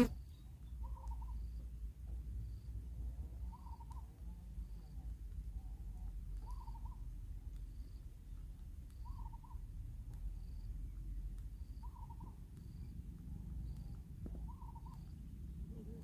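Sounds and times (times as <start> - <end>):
bird call: 0.0 - 1.5, 6.4 - 7.0, 8.9 - 9.6, 11.8 - 12.4, 14.4 - 16.0
faint high peeps: 6.4 - 10.8, 11.4 - 16.0.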